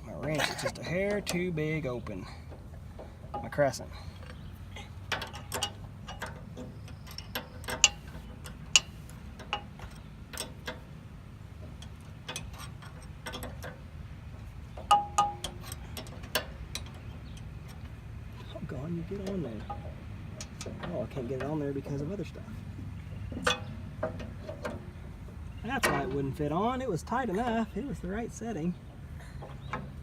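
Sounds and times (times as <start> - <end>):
wrench clinking on metal: 5.1 - 10.9, 14.8 - 17.8, 23.4 - 24.8.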